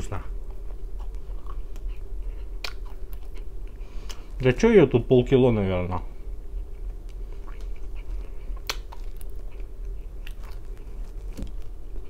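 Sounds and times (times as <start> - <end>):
low hum: 0.0 - 12.0
person chewing crust: 0.3 - 4.4, 6.5 - 12.0.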